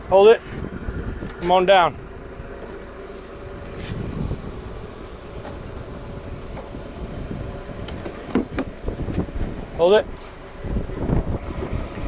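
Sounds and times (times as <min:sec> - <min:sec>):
forklift running: 0:02.0 - 0:09.8.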